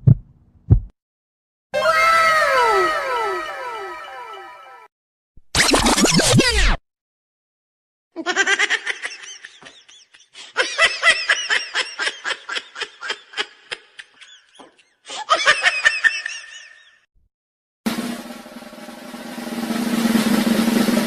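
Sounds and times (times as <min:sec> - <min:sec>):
high-pitched cartoon laughter: 0:08.2 - 0:17.0.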